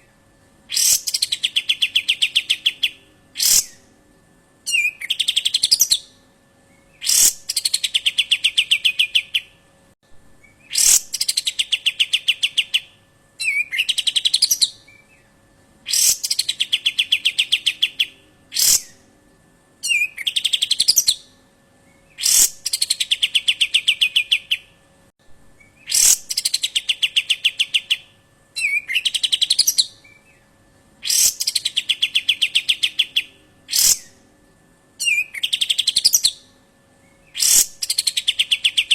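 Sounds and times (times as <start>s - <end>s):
bird call with rattling trill: 0.7s - 3.8s, 6.9s - 9.4s, 10.6s - 15.2s, 15.9s - 19.0s, 22.0s - 24.6s, 25.6s - 28.0s, 31.0s - 34.1s, 37.1s - 38.9s.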